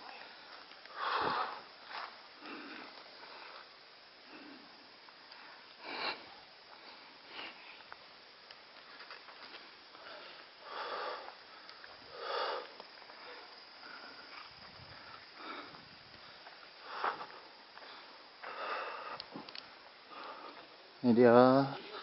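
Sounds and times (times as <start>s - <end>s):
person sniffing and breathing: 5.8s - 7.8s, 10.0s - 14.5s, 15.1s - 19.5s.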